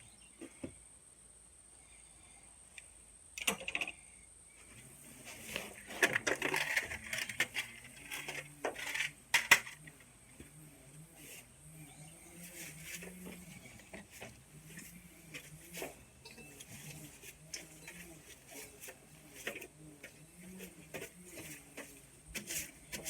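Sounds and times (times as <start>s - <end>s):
faint low wavering hum: 0.0s - 23.0s.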